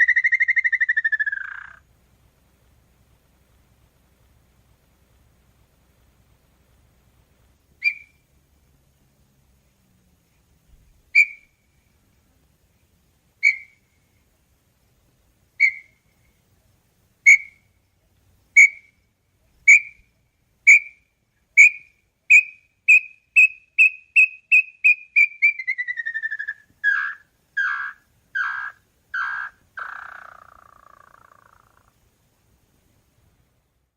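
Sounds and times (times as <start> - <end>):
bird whistling song: 0.0 - 1.8, 7.8 - 8.2, 11.1 - 11.6, 13.4 - 13.9, 15.6 - 16.4, 17.2 - 17.7, 18.6 - 19.0, 19.6 - 21.0, 21.6 - 31.9.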